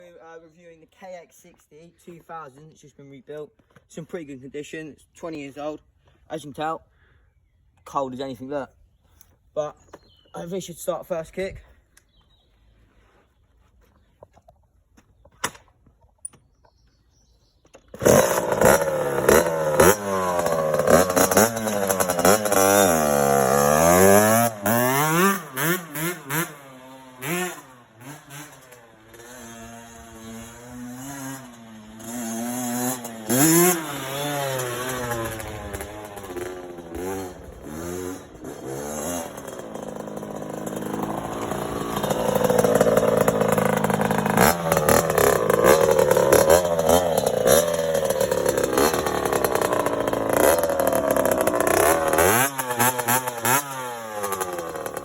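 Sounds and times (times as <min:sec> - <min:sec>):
two-stroke motorcycle engine revving: 0:17.8 - 0:55.0.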